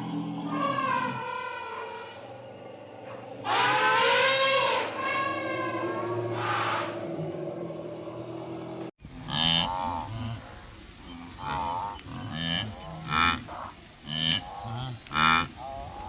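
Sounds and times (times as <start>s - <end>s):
animal calling: 0.0s - 10.6s.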